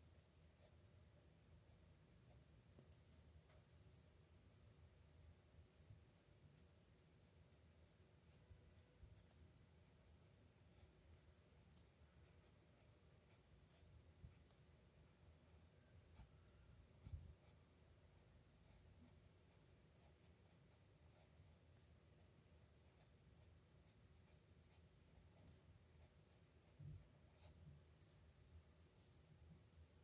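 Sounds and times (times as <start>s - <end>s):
pen scratching on paper: 0.5s - 14.9s, 15.8s - 30.0s.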